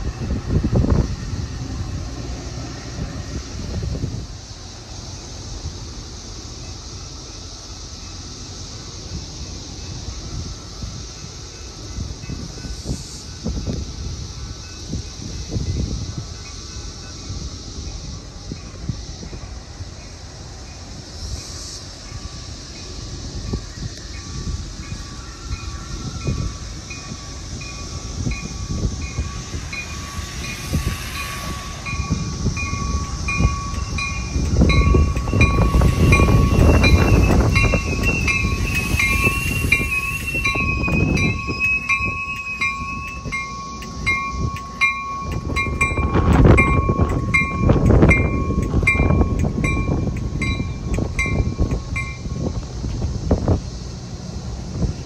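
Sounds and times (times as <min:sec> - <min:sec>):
train wheels rumbling on rails: 0:00.0 - 0:55.0
warning bell dinging: 0:27.0 - 0:52.5.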